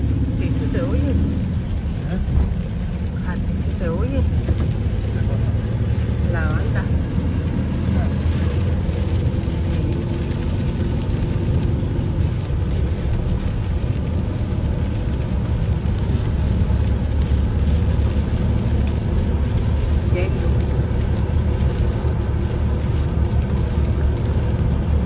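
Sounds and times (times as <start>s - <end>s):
low rumble: 0.0s - 25.0s
rain hiss: 0.0s - 25.0s.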